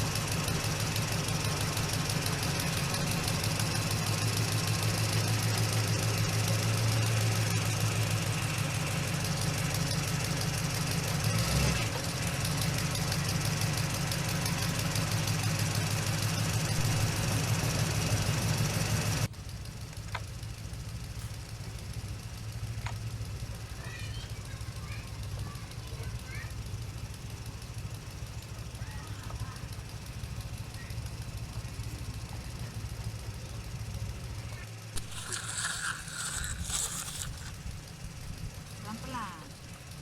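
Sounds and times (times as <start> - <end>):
motor running with rattling pulse: 0.0 - 40.0.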